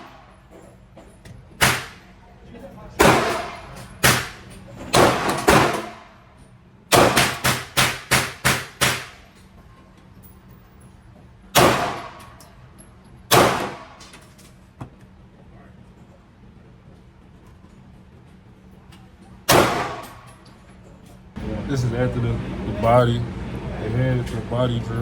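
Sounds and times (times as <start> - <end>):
pistol shots echoing indoors: 1.6 - 2.1, 3.0 - 6.2, 6.9 - 9.3, 11.5 - 12.5, 13.3 - 14.2, 19.5 - 20.4.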